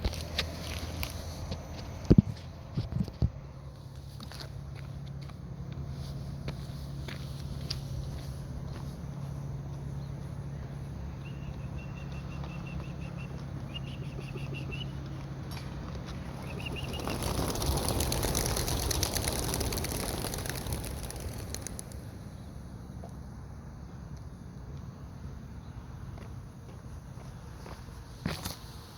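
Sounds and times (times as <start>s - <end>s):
small bird chirping: 9.7s - 15.2s, 16.2s - 17.7s
pigeons flapping wings: 16.1s - 22.2s.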